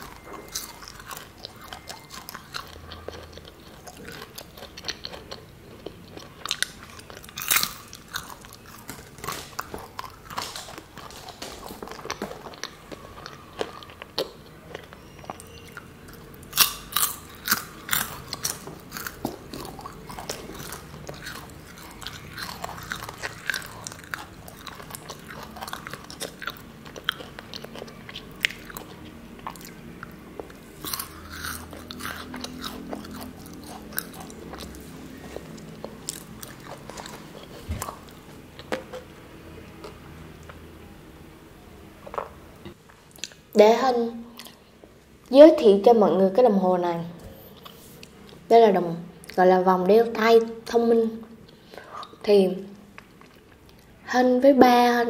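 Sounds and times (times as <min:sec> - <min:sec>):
crunching and chewing snacks: 0:00.0 - 0:40.6, 0:52.9 - 0:54.0.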